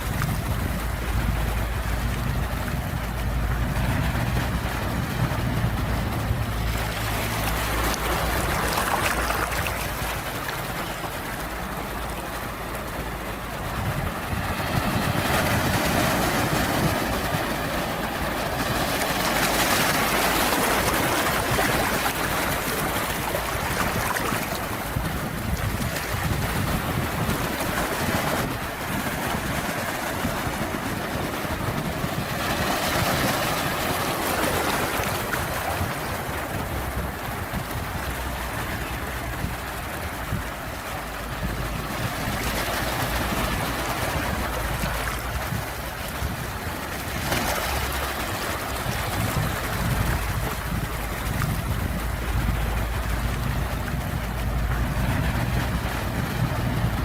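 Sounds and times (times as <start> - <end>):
sea waves washing in: 0.0 - 57.0.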